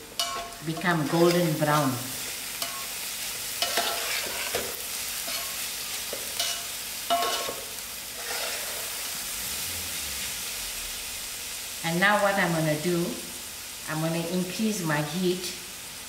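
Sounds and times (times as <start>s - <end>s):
cabbage sizzling in oil: 0.0s - 16.0s
spoon clinking against pot: 0.2s - 0.6s, 6.4s - 7.6s
metal spoon scraping a pot: 3.6s - 4.7s, 6.4s - 7.6s, 8.2s - 9.0s.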